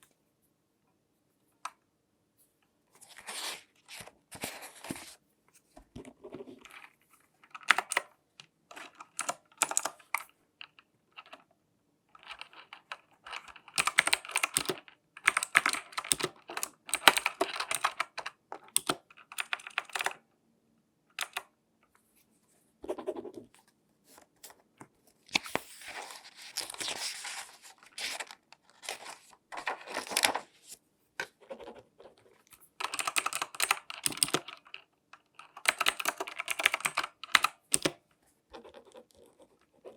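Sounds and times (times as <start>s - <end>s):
clicks and taps: 35.6s - 38.0s.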